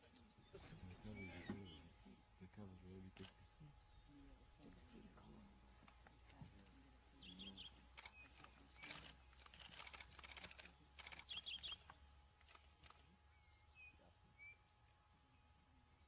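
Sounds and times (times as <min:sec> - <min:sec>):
high bird chirps: 0:11.0 - 0:14.7.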